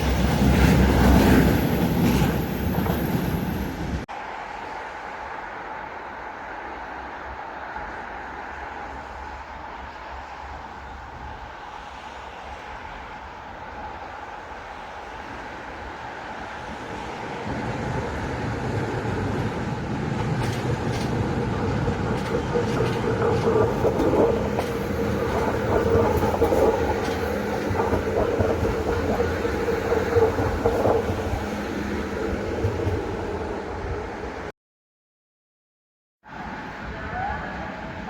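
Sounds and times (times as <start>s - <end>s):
electric train passing: 0.0s - 34.5s
wheels clicking over rails: 17.4s - 34.1s.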